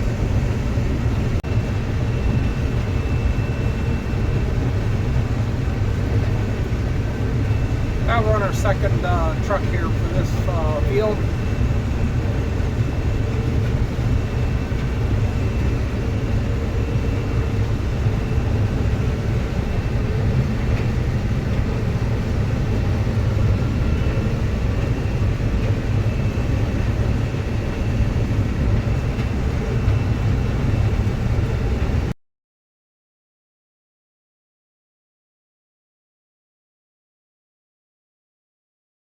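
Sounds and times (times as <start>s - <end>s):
truck engine rumbling: 8.0s - 11.4s.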